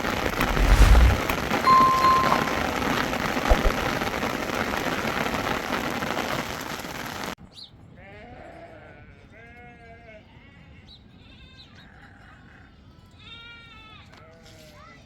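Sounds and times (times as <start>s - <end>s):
heavy rain hiss: 0.0s - 7.4s.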